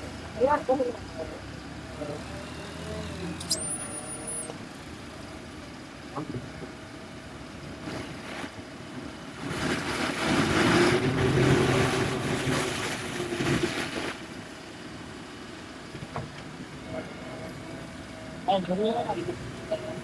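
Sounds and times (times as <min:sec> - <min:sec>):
heavy diesel engine running: 0:00.0 - 0:20.0
rushing noise: 0:07.8 - 0:14.8.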